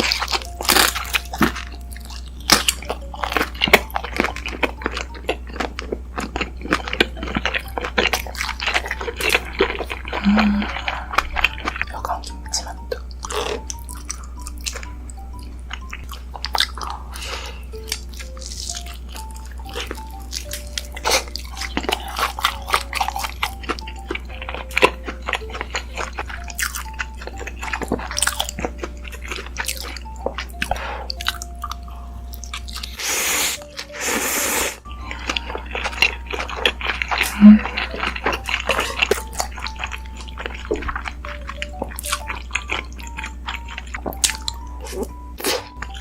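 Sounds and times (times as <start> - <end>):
close chewing with mouth clicks: 0.0 - 46.0
soft background music: 0.0 - 46.0.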